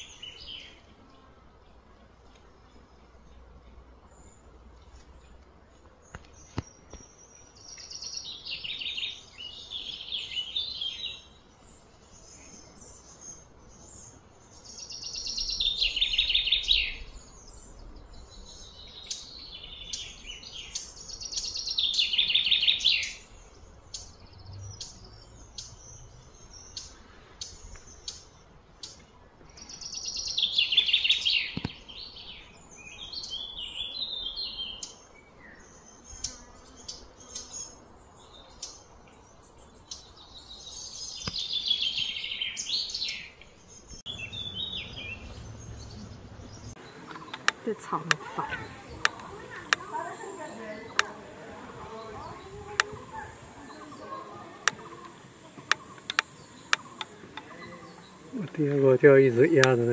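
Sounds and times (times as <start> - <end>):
songbird trilling: 12.2 - 29.0, 29.6 - 59.9.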